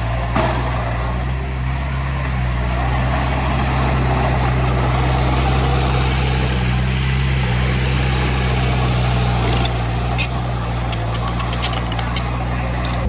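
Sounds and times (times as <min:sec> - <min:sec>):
diesel engine running under load: 0:00.0 - 0:13.0
metallic clinks and rattles: 0:06.9 - 0:13.0.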